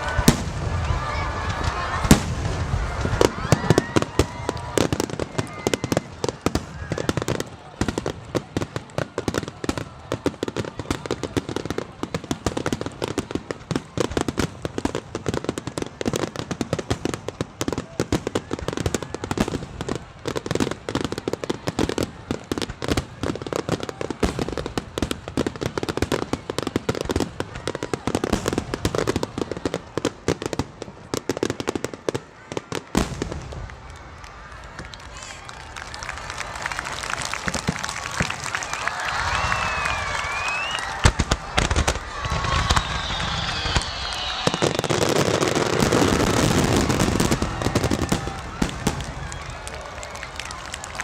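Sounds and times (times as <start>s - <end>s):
fireworks bursting and crackling: 0.0s - 51.0s.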